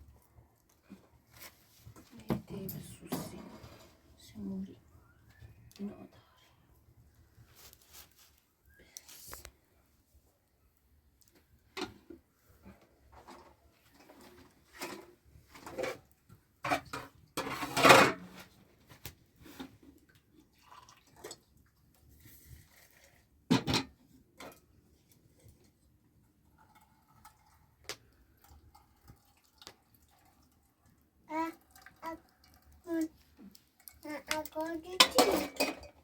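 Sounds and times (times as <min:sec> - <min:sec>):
pots and dishes clinking: 0:34.9 - 0:36.0.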